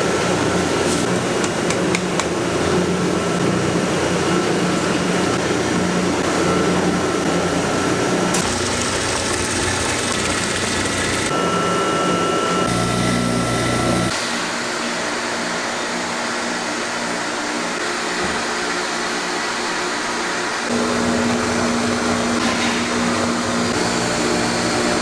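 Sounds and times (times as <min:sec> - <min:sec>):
machinery whirring: 0:08.2 - 0:14.1.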